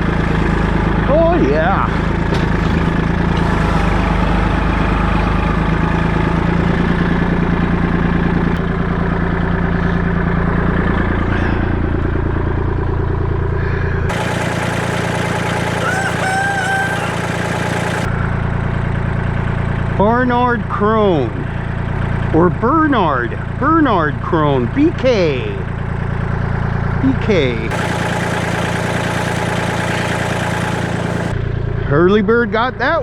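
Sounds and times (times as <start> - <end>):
vehicle engine running: 0.0 - 33.0
rooster crowing: 3.5 - 6.3, 15.4 - 18.1.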